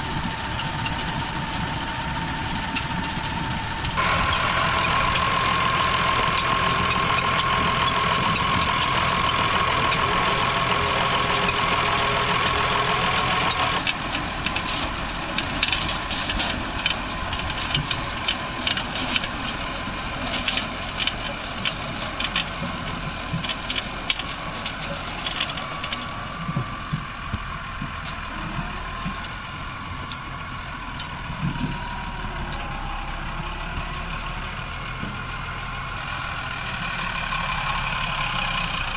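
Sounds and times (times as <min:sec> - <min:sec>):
potato harvester whining: 0:00.0 - 0:38.9
tractor engine running: 0:00.0 - 0:38.9
harvester clicks and rattles: 0:00.5 - 0:29.4.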